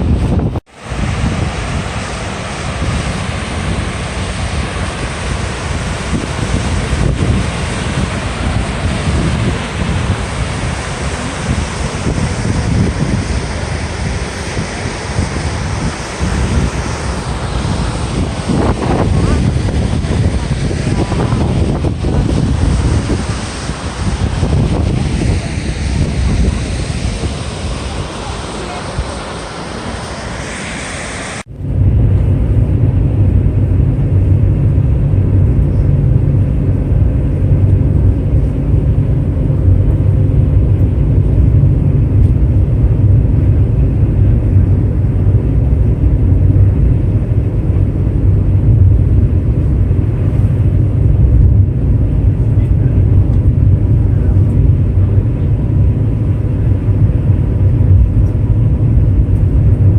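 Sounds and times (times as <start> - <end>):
surf: 0.0 - 59.9
wind: 0.0 - 59.9
vehicle rumble inside cabin: 31.4 - 59.9.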